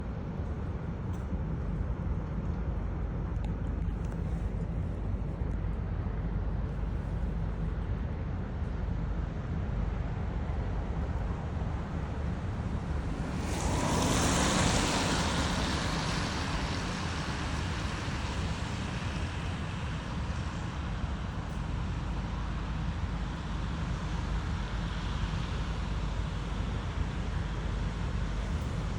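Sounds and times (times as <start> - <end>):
low street ambience rumble: 0.0 - 28.9
vehicle tyres hissing on wet street: 11.7 - 28.9.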